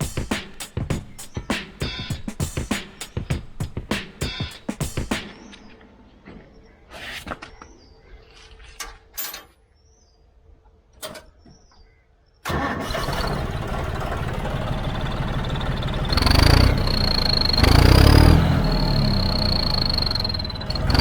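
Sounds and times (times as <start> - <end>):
tractor diesel engine running: 12.5 - 21.0
high turbo whistle: 15.1 - 21.0.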